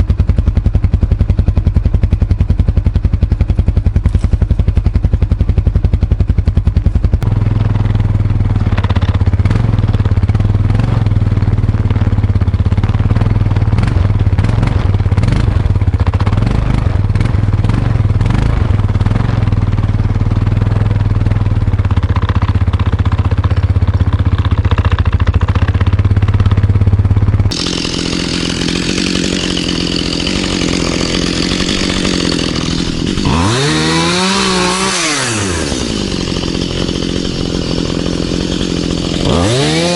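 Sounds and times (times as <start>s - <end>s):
atv engine running: 0.0s - 39.9s
chainsaw revving: 7.2s - 19.6s, 27.5s - 39.9s.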